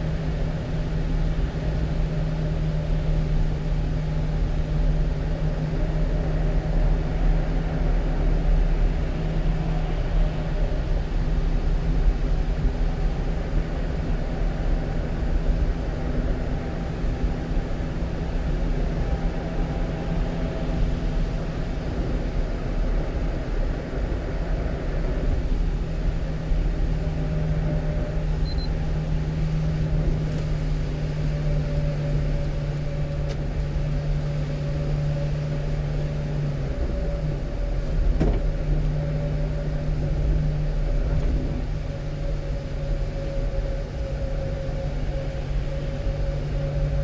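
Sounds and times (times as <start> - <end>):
low road rumble: 0.0 - 47.0.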